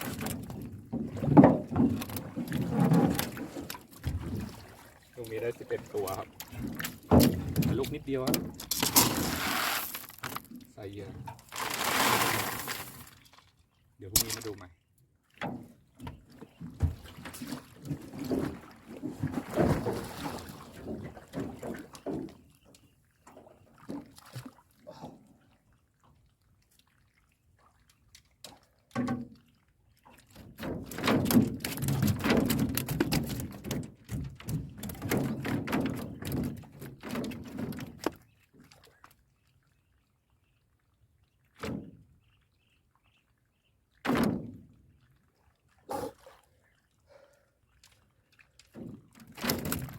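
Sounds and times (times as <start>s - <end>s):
water splashing and pouring: 0.0s - 14.7s, 16.5s - 22.4s, 23.4s - 42.2s
knocks and thuds: 6.5s - 9.1s.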